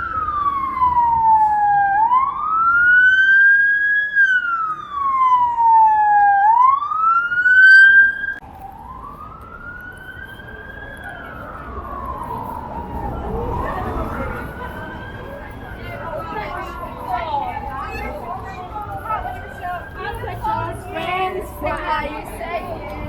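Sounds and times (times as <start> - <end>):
emergency vehicle siren wailing: 0.0 - 23.0.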